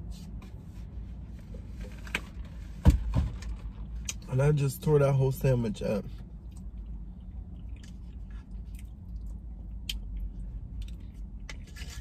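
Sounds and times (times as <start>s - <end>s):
person chewing food: 6.3s - 12.0s.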